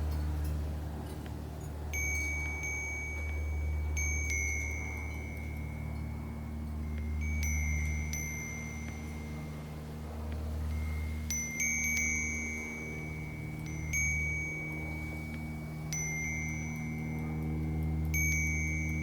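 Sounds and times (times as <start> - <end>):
low rumble of wind: 0.0 - 19.0
wind chimes ringing: 0.0 - 19.0.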